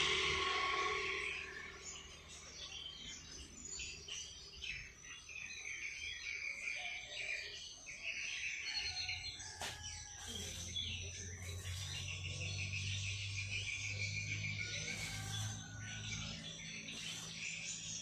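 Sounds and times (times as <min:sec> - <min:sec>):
songbirds chirping and twittering: 0:00.0 - 0:18.0.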